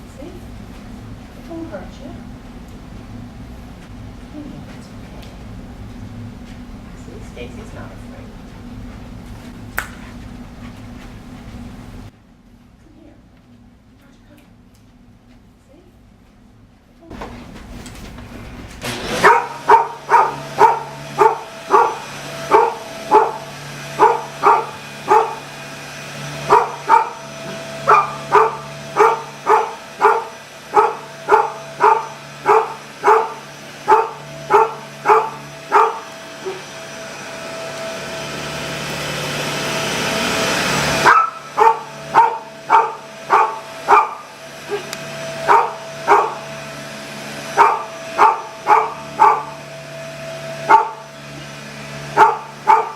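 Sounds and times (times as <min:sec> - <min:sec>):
vacuum cleaner humming: 0:00.0 - 0:12.2, 0:17.1 - 0:52.9
dog barking: 0:19.1 - 0:25.6, 0:26.4 - 0:36.7, 0:41.0 - 0:46.6, 0:47.5 - 0:49.6, 0:50.6 - 0:51.1, 0:52.1 - 0:52.9.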